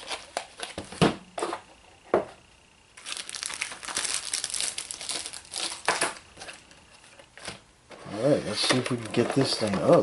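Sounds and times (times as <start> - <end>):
packaging crinkling and rustling: 0.0 - 1.0, 3.0 - 7.6, 8.5 - 10.0.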